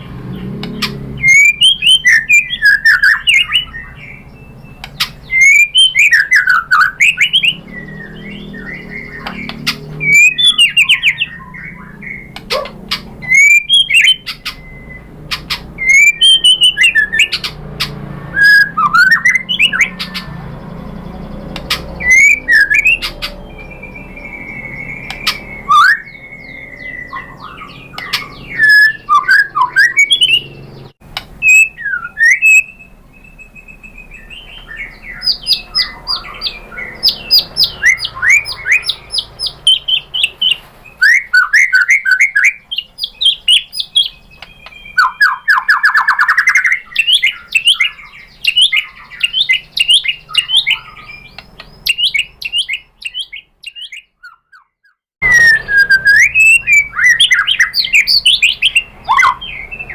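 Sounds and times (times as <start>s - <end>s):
bird singing whistled phrases: 0.8s - 30.8s, 31.4s - 59.9s.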